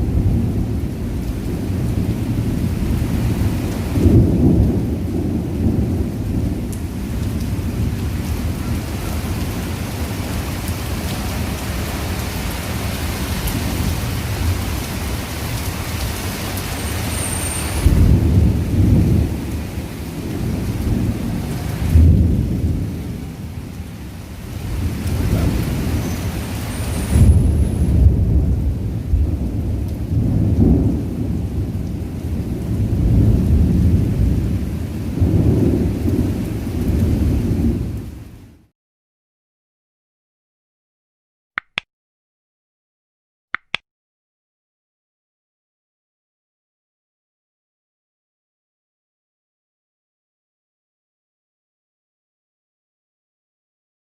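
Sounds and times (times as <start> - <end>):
low thunder rumbling: 0.0 - 11.8, 17.2 - 38.5
heavy rain falling: 0.0 - 38.7.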